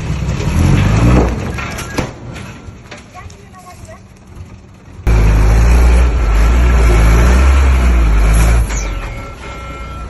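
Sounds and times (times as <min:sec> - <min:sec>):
heavy diesel engine droning: 0:04.4 - 0:10.0.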